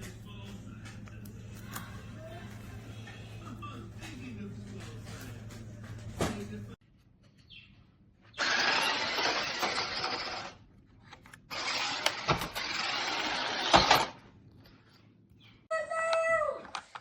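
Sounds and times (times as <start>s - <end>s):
toy truck electric motor: 8.4s - 10.6s, 11.5s - 14.2s.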